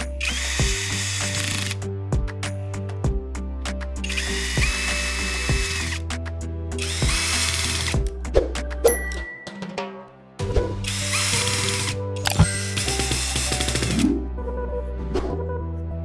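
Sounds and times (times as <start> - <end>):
background music with beat: 0.0 - 14.2
power tool motor whirring: 0.2 - 1.8, 4.0 - 6.0, 6.8 - 8.1, 10.9 - 14.0.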